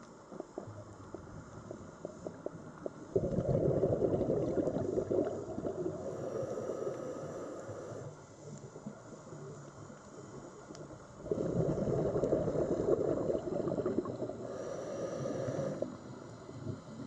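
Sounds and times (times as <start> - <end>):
faint clicks: 7.9 - 11.1.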